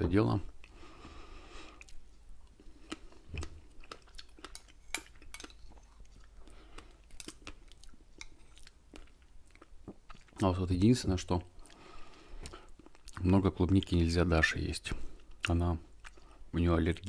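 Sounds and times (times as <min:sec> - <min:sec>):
wet chewing mouth sounds: 0:01.6 - 0:10.4, 0:15.2 - 0:16.4.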